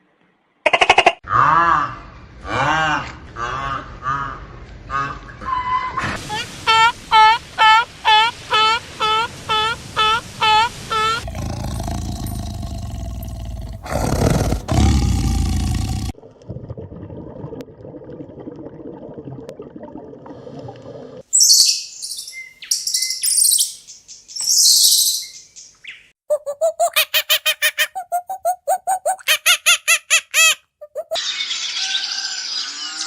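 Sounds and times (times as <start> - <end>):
low noisy animal calls: 11.2 - 16.1.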